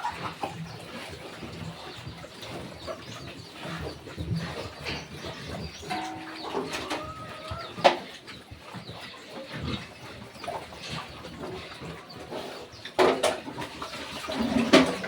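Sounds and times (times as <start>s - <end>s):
farm animals calling: 1.7s - 12.8s.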